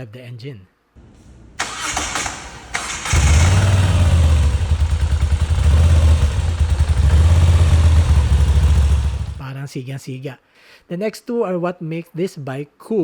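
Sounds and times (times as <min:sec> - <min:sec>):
motorcycle engine starting and running: 0:01.0 - 0:09.4.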